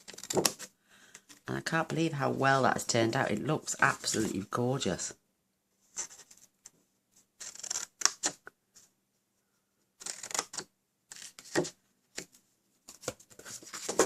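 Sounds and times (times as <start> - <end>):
card rustling: 11.2 - 14.0.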